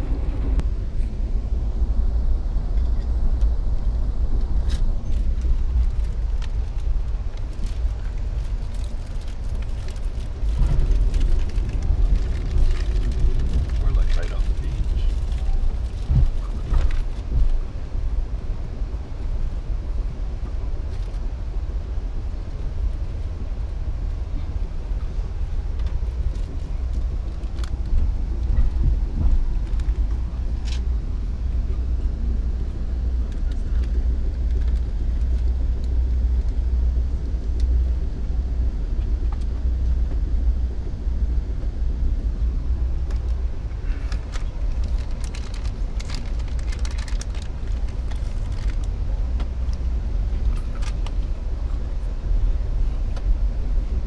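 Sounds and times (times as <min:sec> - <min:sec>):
passenger train rumble: 0:00.0 - 0:54.0
faint clicks and rattles: 0:43.1 - 0:51.3.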